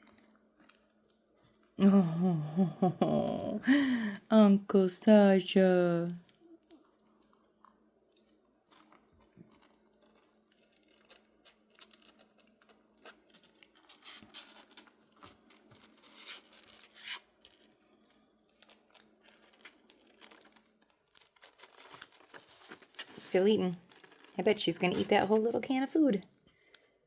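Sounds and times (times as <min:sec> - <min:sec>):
kittens licking and chewing: 0:06.0 - 0:25.6.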